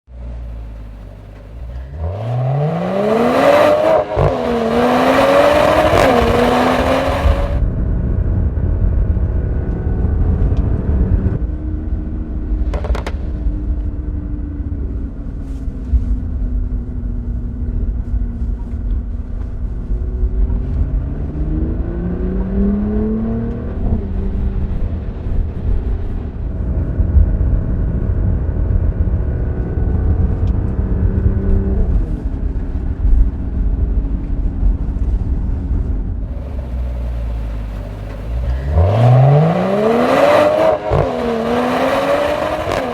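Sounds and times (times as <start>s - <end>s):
car engine revving with exhaust: 0.1s - 42.9s.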